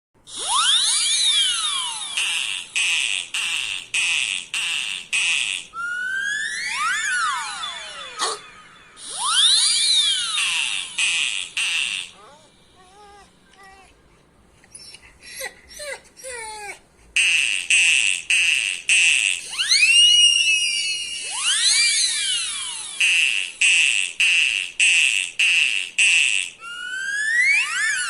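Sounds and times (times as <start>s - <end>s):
swooping electronic tones: 5.8s - 12.4s.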